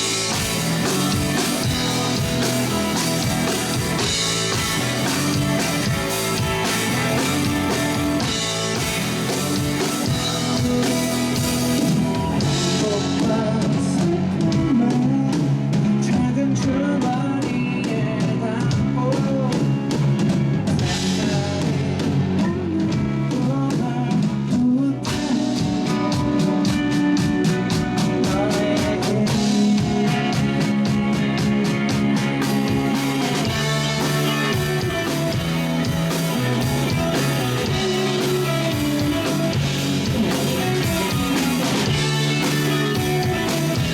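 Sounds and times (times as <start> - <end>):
rock band playing live: 0.0 - 43.9
person singing: 6.8 - 19.9, 28.0 - 31.4, 32.4 - 43.9.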